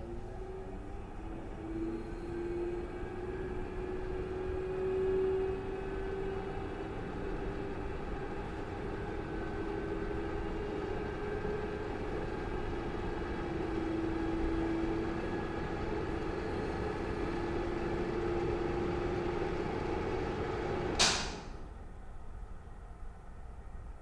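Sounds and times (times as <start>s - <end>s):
exhaust fan humming: 0.0s - 23.2s
switch click: 21.0s - 21.5s.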